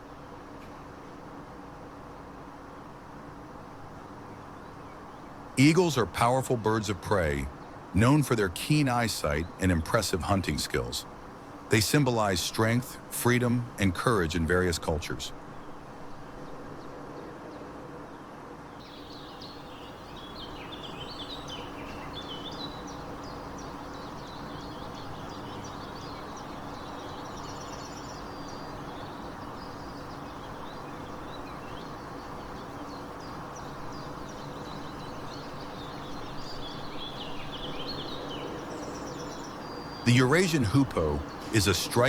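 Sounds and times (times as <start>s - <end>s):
small birds chirping: 4.0s - 17.7s, 18.7s - 42.0s
faint low hum: 18.8s - 42.0s.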